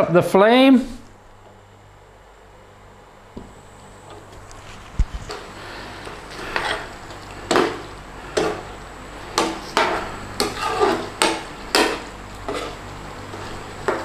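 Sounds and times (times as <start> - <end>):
utensil scraping against a pan: 4.1 - 14.0.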